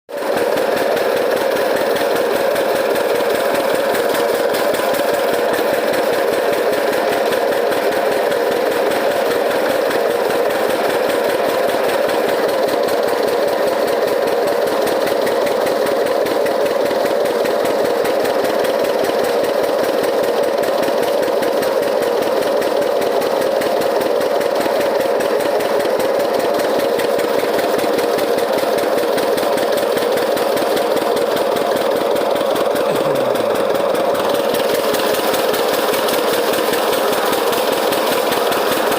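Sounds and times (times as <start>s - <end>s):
diesel engine running: 30.0s - 38.9s.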